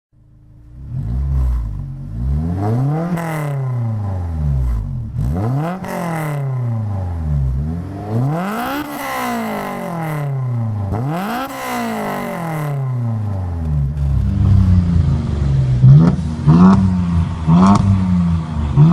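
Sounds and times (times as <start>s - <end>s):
car engine revving: 0.2s - 18.9s.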